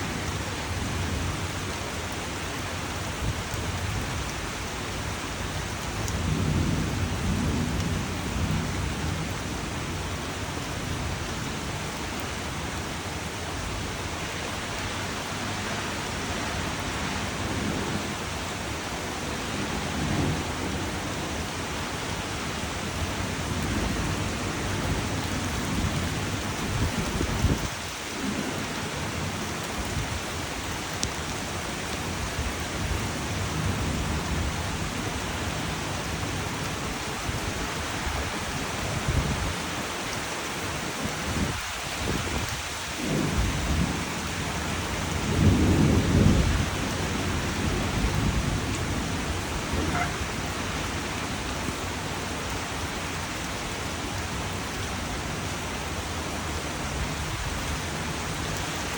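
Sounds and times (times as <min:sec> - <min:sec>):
steady rain falling: 0:00.0 - 0:58.9
low thunder rumbles: 0:03.2 - 0:12.0, 0:16.2 - 0:39.6, 0:41.0 - 0:52.9.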